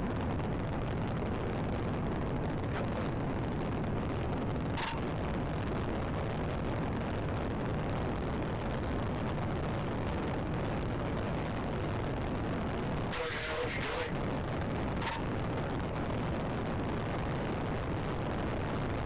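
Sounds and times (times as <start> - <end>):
vehicle rumble: 0.0 - 9.4.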